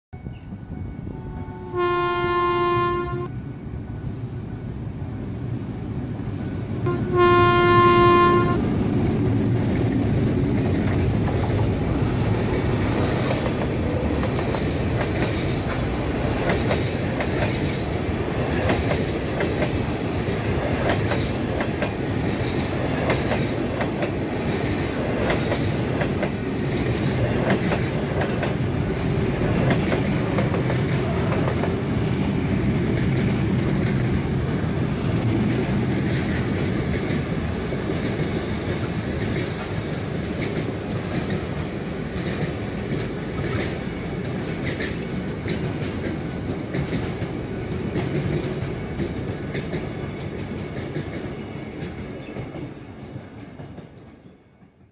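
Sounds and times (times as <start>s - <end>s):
train carriages rumbling past: 0.2s - 54.9s
train horn chord blasts: 0.9s - 3.4s, 6.8s - 8.8s
wheels clacking on rails: 6.3s - 54.9s.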